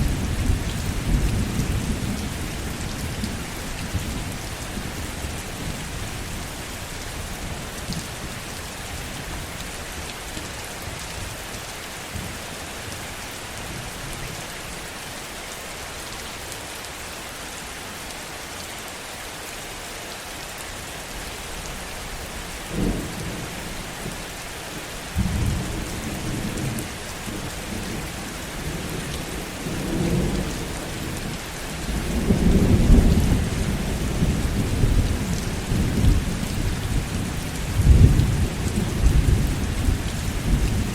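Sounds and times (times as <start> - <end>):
heavy rain falling: 0.0 - 40.9
low thunder rumbling: 27.4 - 40.9.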